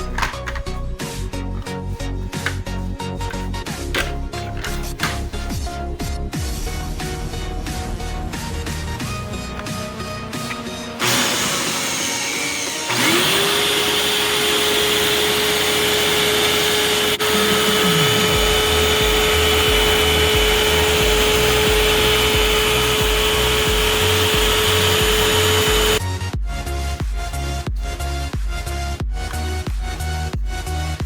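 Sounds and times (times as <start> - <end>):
music with thumping beat: 0.0 - 31.0
vacuum cleaner running: 3.3 - 5.4, 7.0 - 26.0.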